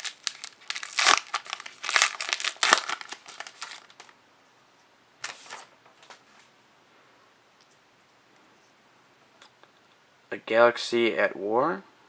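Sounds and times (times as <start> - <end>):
foil card pack tearing and crinkling: 0.0 - 4.1.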